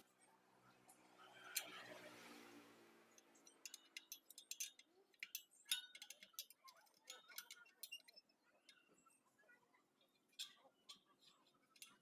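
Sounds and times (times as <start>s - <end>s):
light metallic clicks and clinks: 3.1s - 12.0s.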